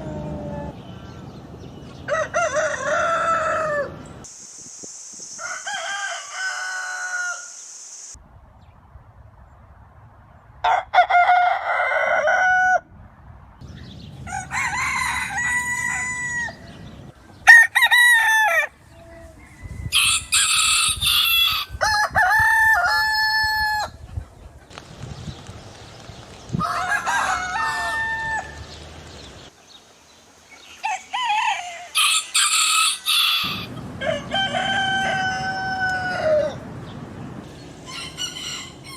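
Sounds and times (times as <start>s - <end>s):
roosters crowing: 0.0s - 1.2s, 1.9s - 4.3s, 5.4s - 7.6s, 10.6s - 12.9s, 14.0s - 24.1s, 26.5s - 29.5s, 30.7s - 38.9s.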